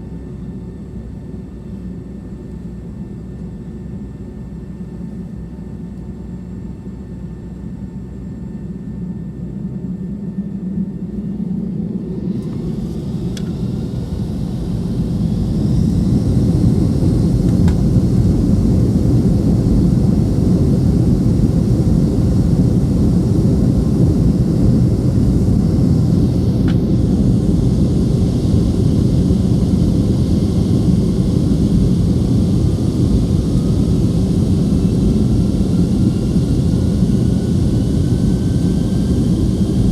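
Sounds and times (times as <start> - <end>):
jet engines spooling up: 10.0 - 39.9.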